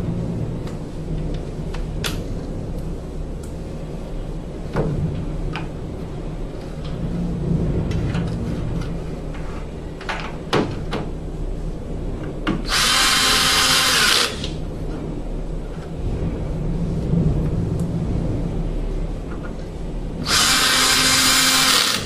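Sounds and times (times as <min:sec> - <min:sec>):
steady low hum: 0:00.0 - 0:22.0
power drill running: 0:12.7 - 0:14.6, 0:20.2 - 0:22.0.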